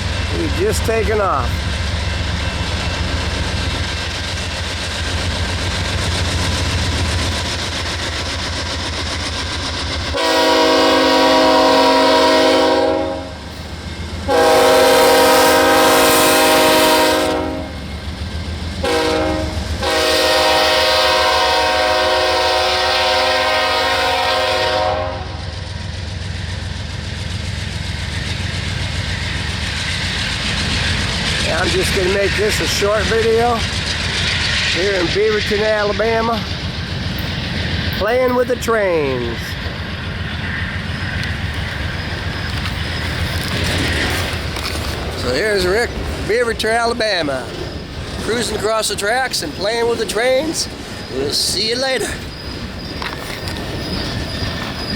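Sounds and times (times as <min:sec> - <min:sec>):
locomotive air horn blasts: 0:10.2 - 0:13.4, 0:14.3 - 0:17.8, 0:18.8 - 0:25.4.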